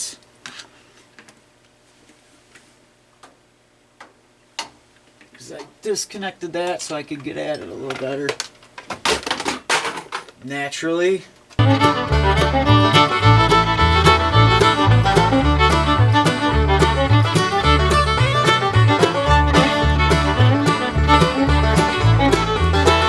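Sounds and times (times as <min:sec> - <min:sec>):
bluegrass instrumental music: 0:11.6 - 0:23.0
bouncing bass: 0:11.6 - 0:23.0
fiddle: 0:11.6 - 0:23.0
plucked banjo: 0:11.6 - 0:23.0.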